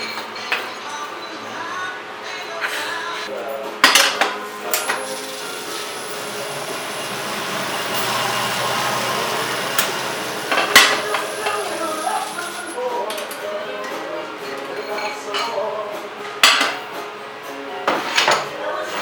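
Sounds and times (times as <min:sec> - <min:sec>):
steady hiss: 0:04.9 - 0:12.8.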